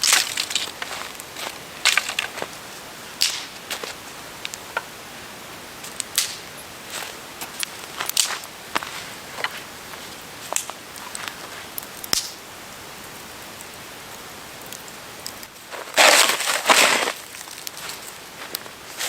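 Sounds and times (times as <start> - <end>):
footsteps crunching in snow: 0.0 - 2.8, 6.9 - 11.8, 15.6 - 19.0
faint steady hiss: 0.0 - 19.0
small snaps and clicks: 3.2 - 4.9, 5.9 - 6.4, 7.4 - 9.6, 10.5 - 12.4, 13.2 - 15.6.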